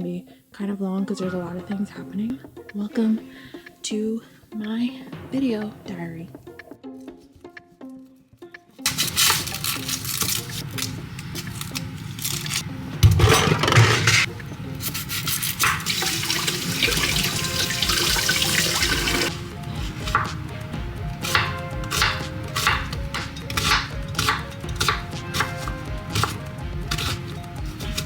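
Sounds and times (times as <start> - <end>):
background music: 0.0 - 28.0
water running into sink: 15.3 - 19.3.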